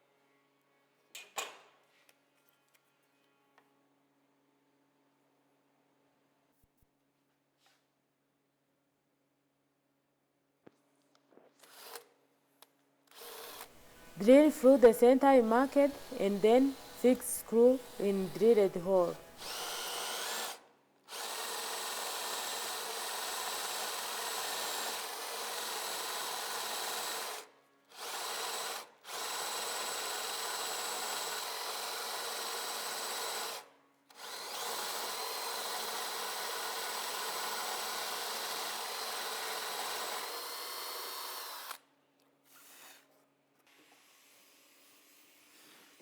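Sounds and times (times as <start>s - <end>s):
electric drill driving screws: 11.6s - 12.2s, 13.1s - 41.9s.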